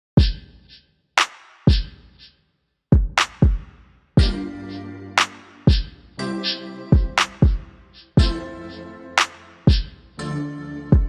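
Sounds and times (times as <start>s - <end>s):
electronic drum hits: 4.2s - 4.4s, 7.0s - 8.4s.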